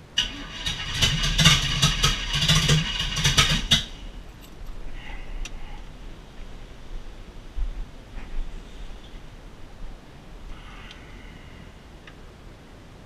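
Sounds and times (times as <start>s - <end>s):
engine cranking and firing unevenly: 0.2s - 4.2s
exhaust pops: 0.2s - 4.2s.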